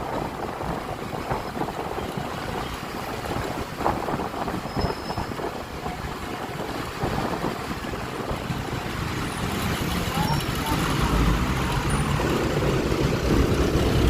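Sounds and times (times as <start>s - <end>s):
road noise: 0.0s - 14.0s
wind rushing over microphone: 0.0s - 14.0s
scooter engine: 7.7s - 14.0s.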